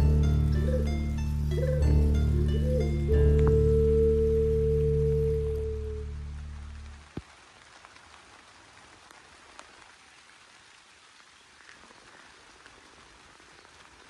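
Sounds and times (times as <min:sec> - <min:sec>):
faint steady rain: 0:00.0 - 0:14.0
single raindrops ticking: 0:03.2 - 0:14.0.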